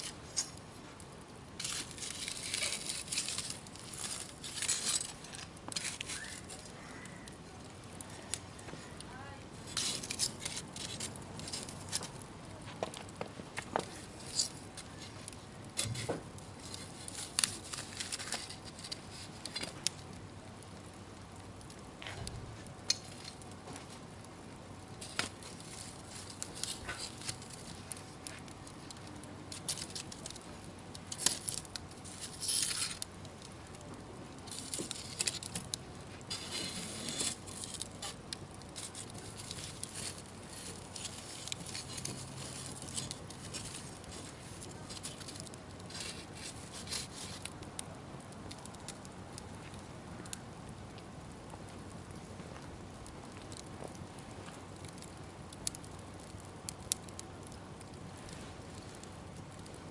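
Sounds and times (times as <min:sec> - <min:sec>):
campfire crackling and popping: 0:00.0 - 0:59.9
fire hissing: 0:00.0 - 0:59.9.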